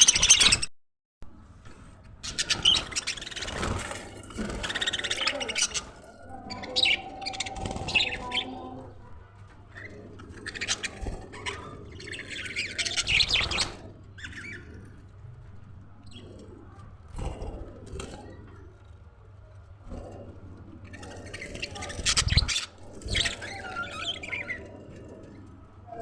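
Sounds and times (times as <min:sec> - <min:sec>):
budgerigars chirping and chattering: 0:00.0 - 0:00.6, 0:02.2 - 0:09.1, 0:09.7 - 0:15.1, 0:19.9 - 0:25.3.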